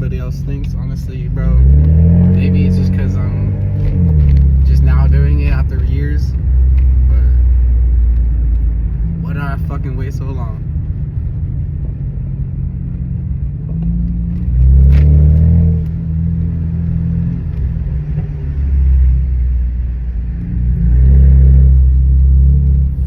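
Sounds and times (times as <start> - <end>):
car exhaust deep drone: 0.0 - 23.0.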